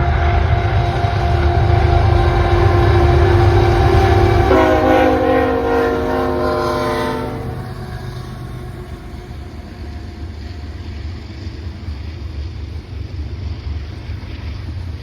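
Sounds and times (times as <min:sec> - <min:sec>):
train horn chord: 0:00.0 - 0:11.0
diesel locomotive engine rumbling: 0:00.0 - 0:15.0.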